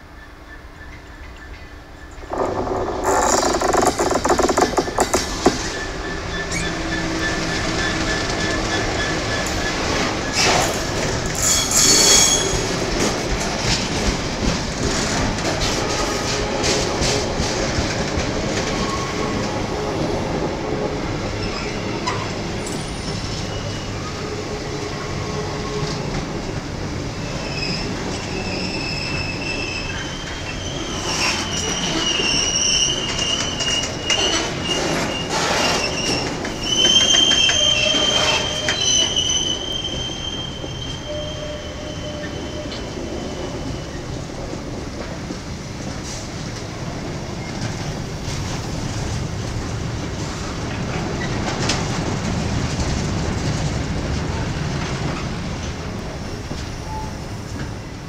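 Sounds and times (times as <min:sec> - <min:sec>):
train wheels clattering on rails: 0:00.9 - 0:58.0
wheel squeal: 0:02.3 - 0:10.8, 0:11.4 - 0:12.8, 0:27.2 - 0:44.0.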